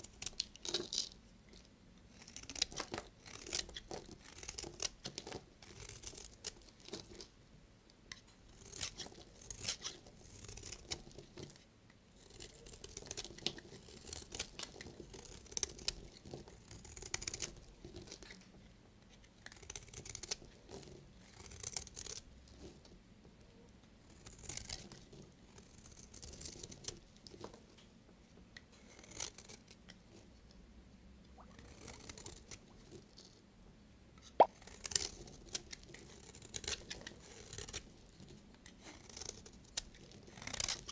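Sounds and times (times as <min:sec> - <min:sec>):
knife cutting through soap: 0:08.6 - 0:11.6.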